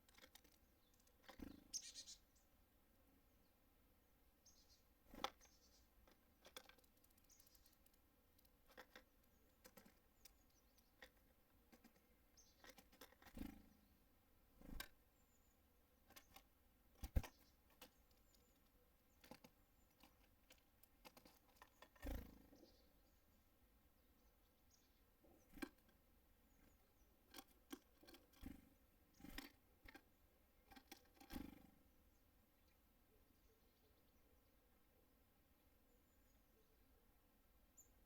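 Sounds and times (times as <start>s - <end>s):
birds tapping and pecking: 0.0s - 2.3s, 4.5s - 22.9s, 24.7s - 32.0s
faint high bird chirps: 0.0s - 2.6s, 4.3s - 11.3s, 11.9s - 20.3s, 21.2s - 38.0s.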